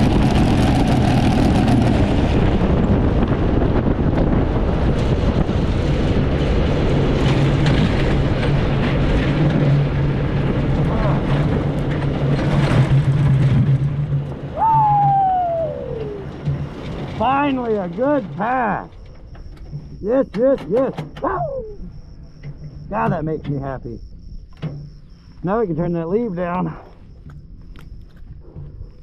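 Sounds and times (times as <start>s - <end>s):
dragster engine drone: 0.0s - 14.5s
wind noise on microphone: 0.0s - 25.4s
person whooping: 14.6s - 16.4s, 21.2s - 21.9s.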